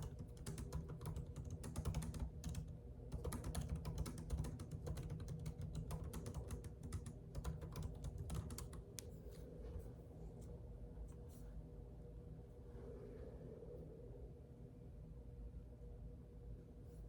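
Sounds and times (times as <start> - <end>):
typing on computer keyboard: 0.0 - 9.0
low steady hum: 0.0 - 17.0.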